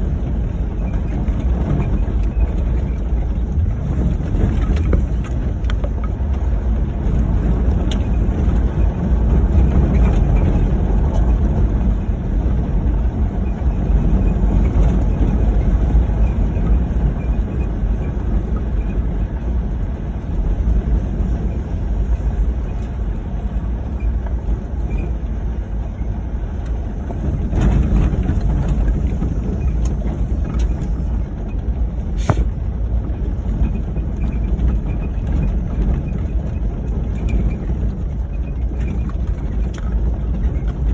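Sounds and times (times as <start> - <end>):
car engine rumble: 0.0 - 40.9
tyres on rough ground: 32.0 - 32.6.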